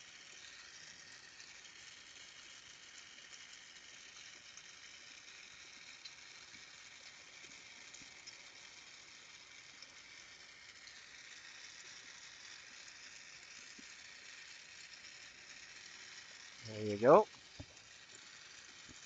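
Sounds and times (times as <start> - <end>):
torch flame hissing: 12.9 - 19.0.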